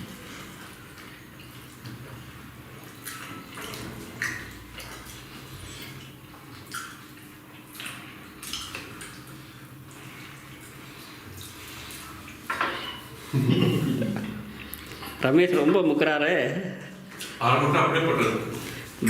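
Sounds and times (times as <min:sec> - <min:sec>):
people eating by hand: 0:00.0 - 0:19.0
plates clinking: 0:12.5 - 0:14.4
steady low hum: 0:13.1 - 0:15.2.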